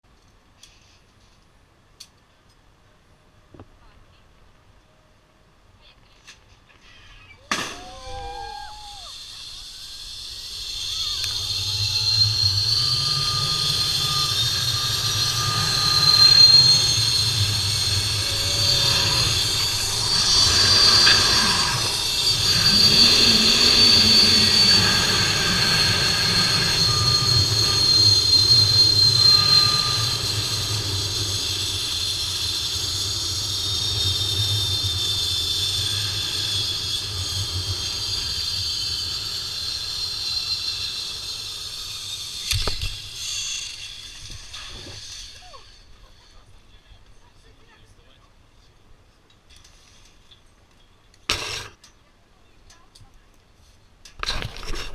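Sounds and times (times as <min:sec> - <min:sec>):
zipline pulley whining on cable: 0:07.5 - 0:46.6.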